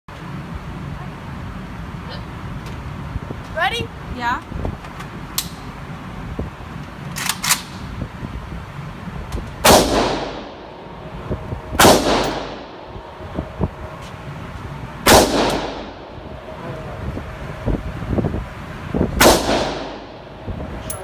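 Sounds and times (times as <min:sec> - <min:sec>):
faint gunshots: 0:09.6 - 0:10.6, 0:11.8 - 0:12.8, 0:15.1 - 0:16.0, 0:19.2 - 0:20.1
loud gunshots ringing: 0:09.6 - 0:10.7, 0:11.8 - 0:12.9, 0:15.0 - 0:16.2, 0:19.2 - 0:20.2.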